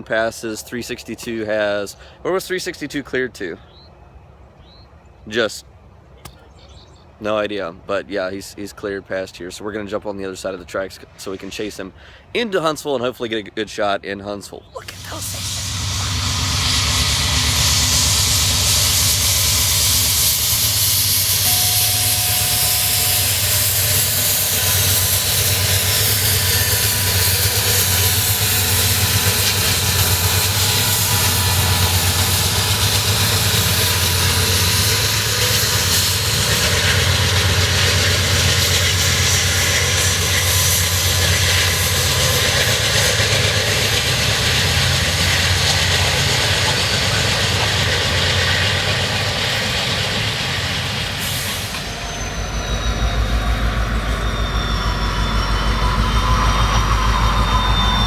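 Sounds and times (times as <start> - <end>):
train wheel and rail noise: 9.8 - 12.6, 14.8 - 58.0
diesel engine drone: 14.8 - 58.0.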